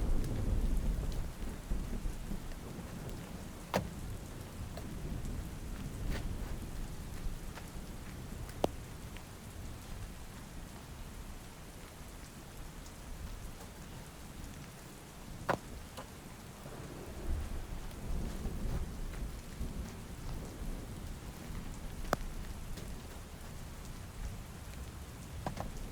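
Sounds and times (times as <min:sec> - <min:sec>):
low thunder rumble: 0:00.0 - 0:08.0, 0:16.4 - 0:25.9
heavy rain falling: 0:00.0 - 0:25.9
sharp raindrops smacking: 0:00.0 - 0:25.9.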